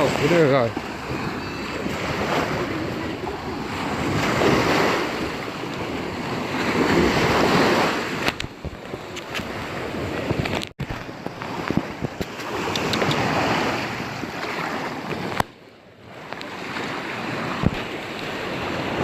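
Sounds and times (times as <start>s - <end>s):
wind buffeting microphone: 0.0s - 15.5s, 16.1s - 19.0s
sea surf washing onto shore: 0.0s - 19.0s
sharp clicks: 12.2s - 13.3s.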